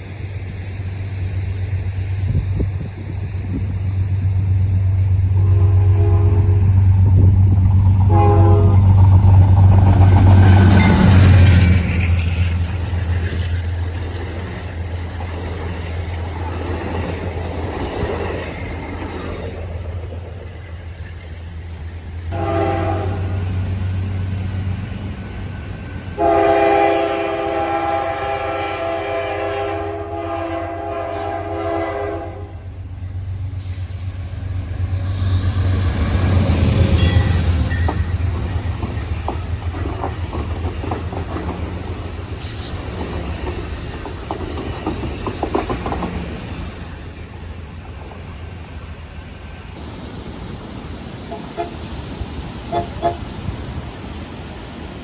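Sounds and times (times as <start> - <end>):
train wheels on rails clickety-clack: 0.0 - 22.4, 32.9 - 49.9
diesel locomotive engine rumble: 0.0 - 55.0
train air horn: 5.3 - 6.9, 8.0 - 9.1, 22.3 - 23.6, 26.1 - 32.7, 35.0 - 37.4, 42.4 - 43.7, 51.3 - 51.8, 52.7 - 53.3.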